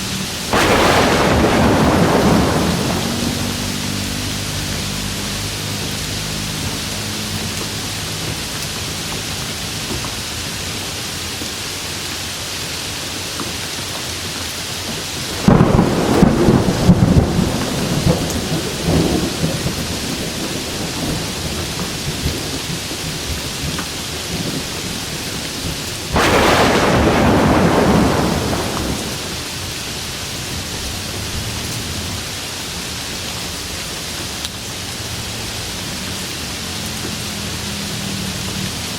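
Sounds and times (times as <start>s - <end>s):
steady rain falling: 0.0s - 38.9s
thunder rumbling: 0.5s - 7.3s, 15.2s - 29.6s.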